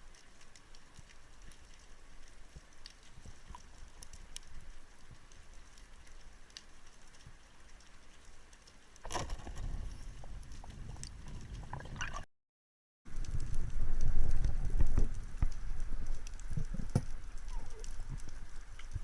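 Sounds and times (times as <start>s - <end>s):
clicks and splashes: 0.0s - 12.3s
water noise: 0.0s - 12.3s, 13.1s - 19.0s.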